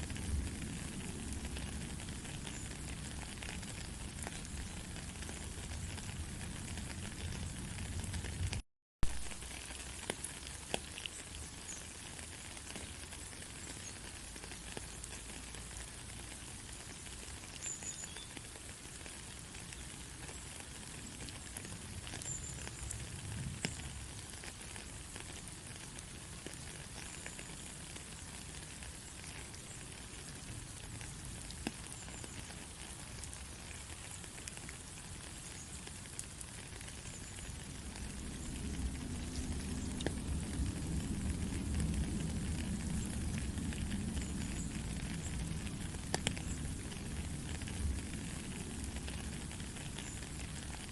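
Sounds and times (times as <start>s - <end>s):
steady rain: 0.0s - 50.9s
low rumble: 37.7s - 49.3s.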